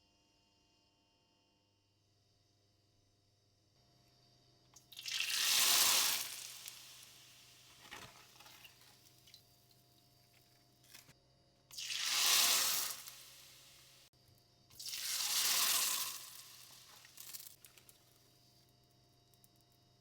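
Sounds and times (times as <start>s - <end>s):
oil sizzling loudly: 4.9s - 9.4s, 11.7s - 14.1s, 14.8s - 18.1s
light crackling of oil: 14.8s - 18.2s.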